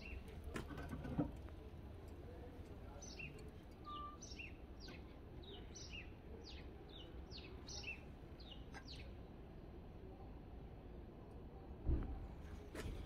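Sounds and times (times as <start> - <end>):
small songbird singing: 0.0 - 0.3, 2.4 - 9.2.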